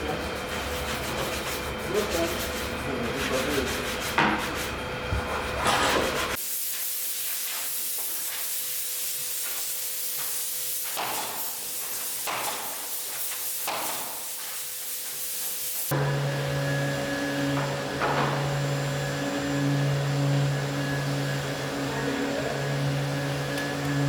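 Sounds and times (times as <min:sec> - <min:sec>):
low machine hum: 0:15.9 - 0:24.0.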